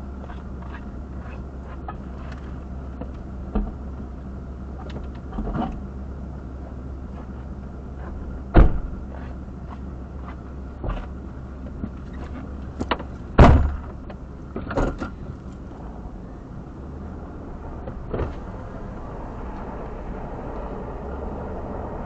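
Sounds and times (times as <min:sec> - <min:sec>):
sharp knocks and clunks: 0:08.0 - 0:09.3, 0:10.8 - 0:11.1, 0:11.8 - 0:15.2, 0:17.9 - 0:18.5.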